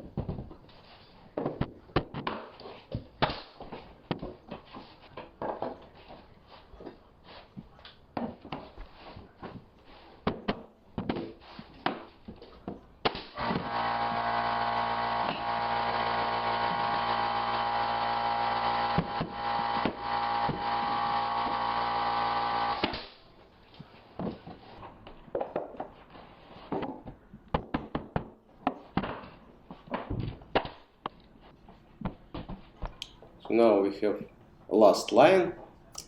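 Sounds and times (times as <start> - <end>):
electric motor running: 13.4 - 22.9.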